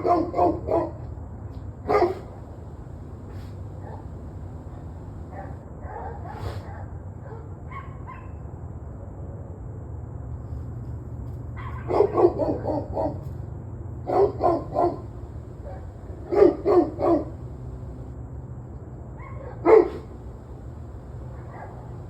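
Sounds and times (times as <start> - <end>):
dog barking: 0.0 - 1.0, 1.9 - 8.4, 11.7 - 13.3, 14.1 - 18.1, 19.3 - 22.0
steady low hum: 2.0 - 5.6, 14.2 - 18.2, 19.8 - 22.0.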